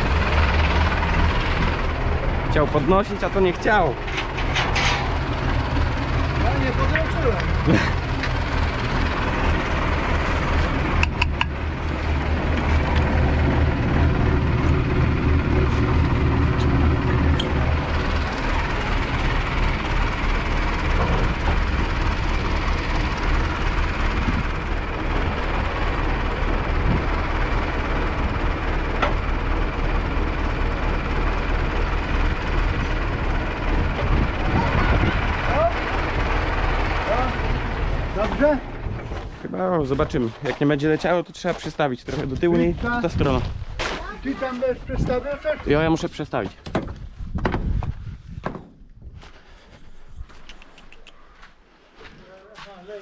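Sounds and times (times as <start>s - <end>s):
farm machinery engine running: 0.0s - 47.1s.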